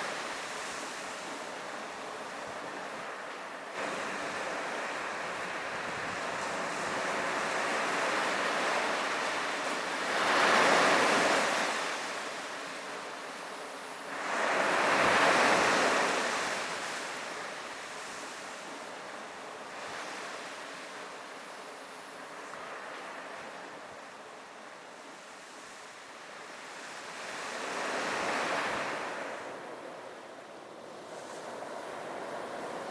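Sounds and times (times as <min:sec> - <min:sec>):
sea waves breaking on beach: 0:00.0 - 0:32.9
wind on microphone: 0:03.8 - 0:08.4.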